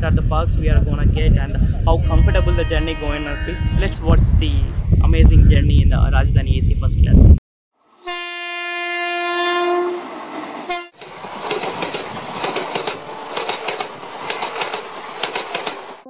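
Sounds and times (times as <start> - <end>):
train horn blast: 1.9 - 4.9, 7.9 - 11.0
wheels clicking over rail joints: 10.9 - 16.0.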